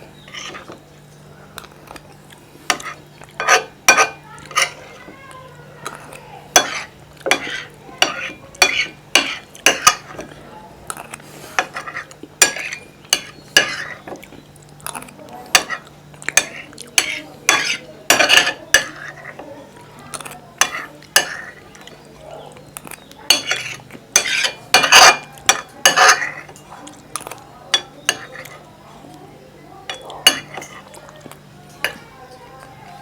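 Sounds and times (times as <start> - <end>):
wet chewing: 1.5 - 17.9, 18.8 - 24.4, 25.2 - 33.0
utensil clinking on plate: 2.7 - 5.0, 6.6 - 10.4, 15.5 - 19.5, 22.8 - 28.6, 29.9 - 32.7.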